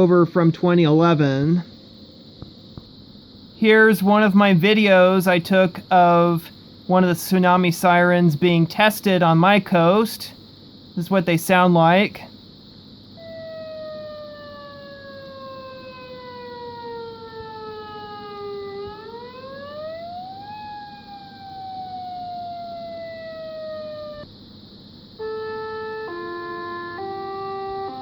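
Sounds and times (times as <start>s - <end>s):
chime-like siren notes: 13.2s - 24.2s
warning siren wailing: 13.2s - 24.3s, 25.2s - 28.0s.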